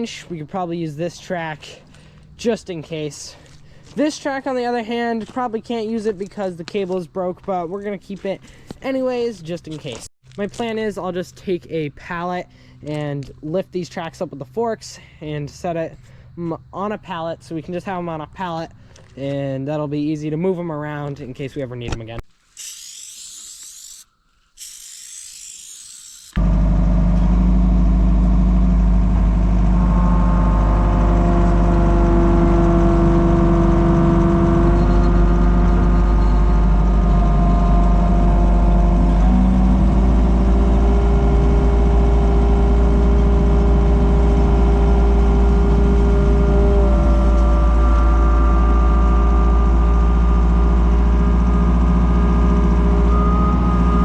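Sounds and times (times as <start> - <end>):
whining tones changing pitch: 22.6 - 26.6, 29.5 - 54.0
skid steer engine running hard: 26.4 - 54.0.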